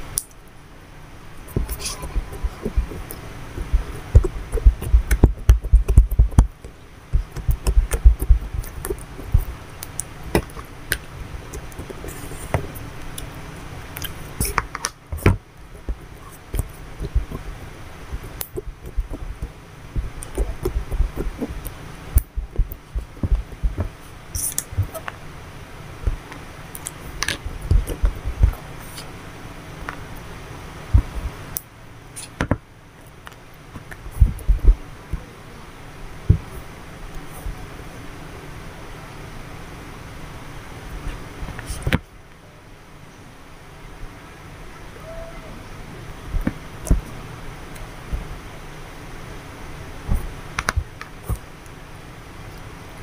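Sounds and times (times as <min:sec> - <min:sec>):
soft low thumps on table: 0:01.5 - 0:09.5, 0:22.2 - 0:24.0, 0:36.3 - 0:36.5.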